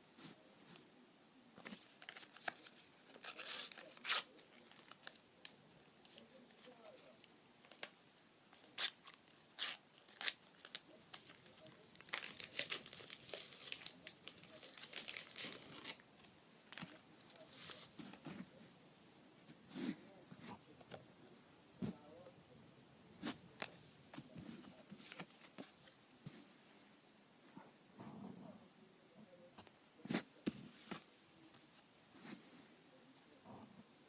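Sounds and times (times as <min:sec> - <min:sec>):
sticker packets tearing: 0:02.1 - 0:05.2, 0:08.6 - 0:16.0
wrappers crinkling and rustling: 0:08.6 - 0:16.0.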